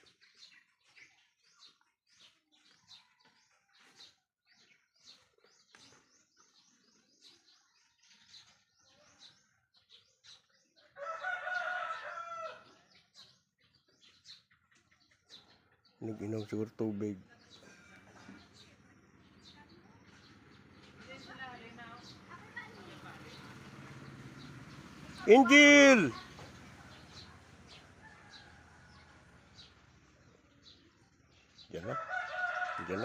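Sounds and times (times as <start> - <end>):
small birds chirping: 0.0 - 33.0
rooster crowing: 11.0 - 12.7, 25.2 - 26.5, 27.7 - 29.4, 31.8 - 33.0.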